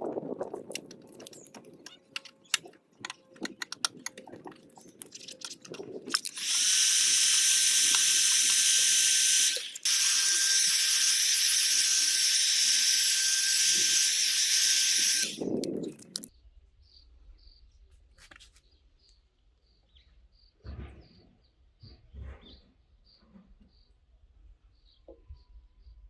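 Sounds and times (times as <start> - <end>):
heat gun hissing with fan whine: 6.3 - 15.6.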